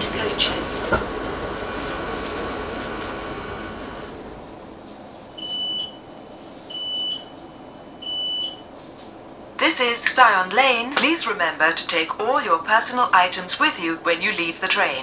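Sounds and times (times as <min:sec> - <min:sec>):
train running noise: 0:00.0 - 0:15.0
high electronic door warning beeps: 0:05.4 - 0:06.0, 0:06.7 - 0:07.4, 0:08.0 - 0:08.6.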